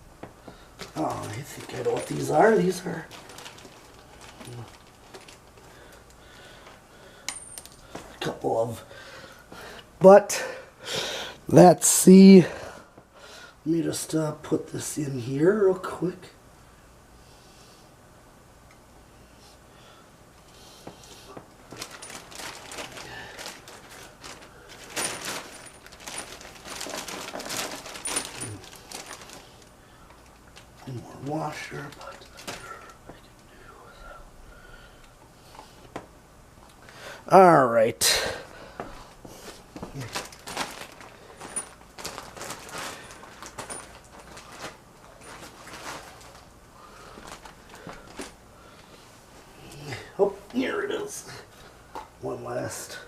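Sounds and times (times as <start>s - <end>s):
packaging rustling: 0.8s - 6.8s, 21.6s - 33.4s, 39.0s - 48.9s
metal hardware clicking and rattling: 7.3s - 8.0s.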